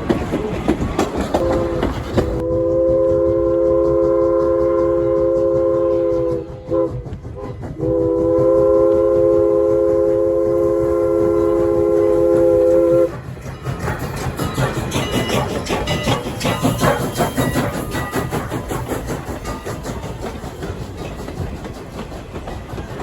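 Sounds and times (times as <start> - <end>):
train running rumble: 0.0 - 23.0
locomotive chime whistle: 1.4 - 13.1.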